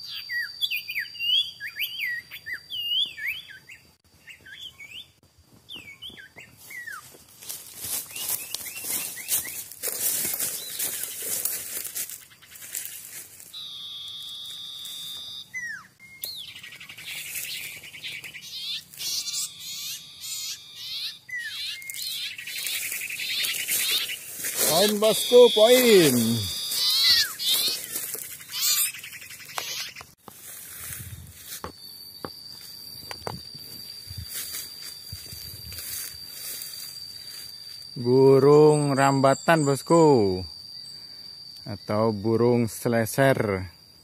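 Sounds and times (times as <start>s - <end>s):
bird whistling calls: 0.0s - 7.1s, 8.1s - 11.4s, 12.2s - 30.1s.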